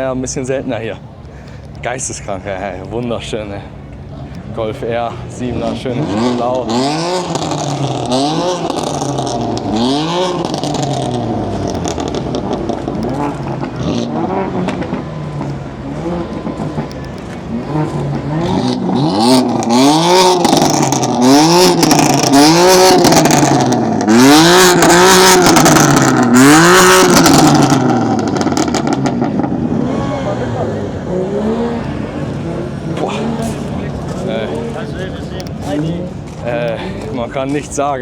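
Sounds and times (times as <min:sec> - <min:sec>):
car engine revving: 0:00.0 - 0:38.0
exhaust cracks: 0:00.0 - 0:38.0.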